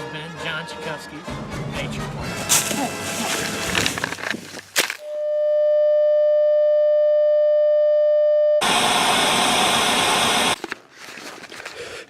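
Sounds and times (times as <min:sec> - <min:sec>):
loud hissing static: 0:08.6 - 0:10.6.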